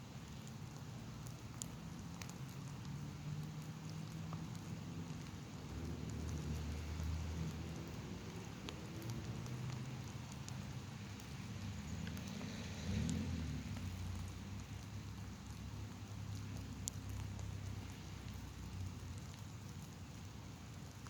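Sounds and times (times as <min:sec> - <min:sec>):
light rain hiss: 0:00.0 - 0:21.0
rain drop ticks: 0:00.0 - 0:21.0.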